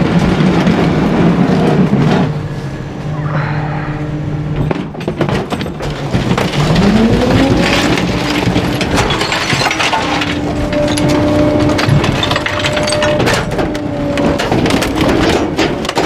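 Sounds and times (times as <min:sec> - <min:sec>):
truck engine humming: 0:00.0 - 0:16.0
garbage truck packer crushing: 0:04.6 - 0:16.0.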